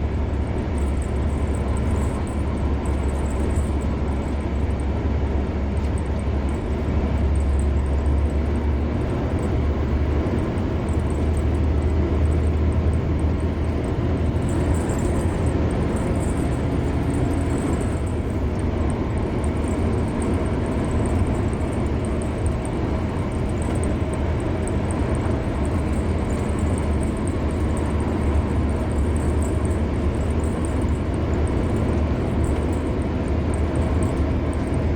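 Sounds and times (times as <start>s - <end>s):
deep low rumble: 0.0s - 34.9s
road and tyre noise: 0.0s - 34.9s.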